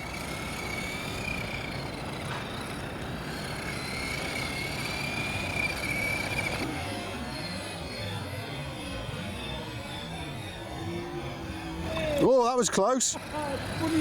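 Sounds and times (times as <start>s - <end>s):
tyre and road noise: 0.0s - 6.7s, 13.0s - 14.0s
electric motor whine: 0.0s - 14.0s.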